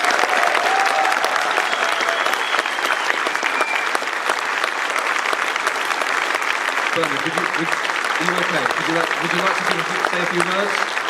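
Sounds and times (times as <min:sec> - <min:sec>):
audience applauding: 0:00.0 - 0:11.0
faint whistles: 0:01.6 - 0:04.0.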